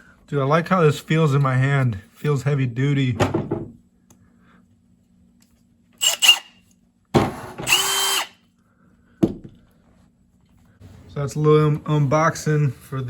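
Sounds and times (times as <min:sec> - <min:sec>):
drill click: 0:06.0 - 0:06.5, 0:07.6 - 0:08.4
cordless drill motor whine: 0:06.0 - 0:06.6, 0:07.6 - 0:08.4.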